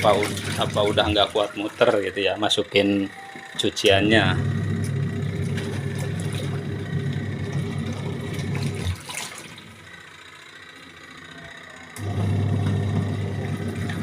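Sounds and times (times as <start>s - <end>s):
water sloshing in tub: 0.0s - 2.8s, 5.0s - 9.9s
washing machine motor humming: 0.0s - 14.0s.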